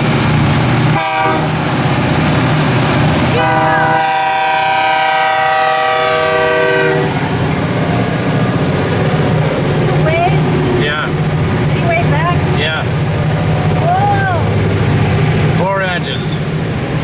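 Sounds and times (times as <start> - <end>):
diesel locomotives rumbling past: 0.0 - 17.0
train horn blast: 0.9 - 1.8, 3.3 - 7.4.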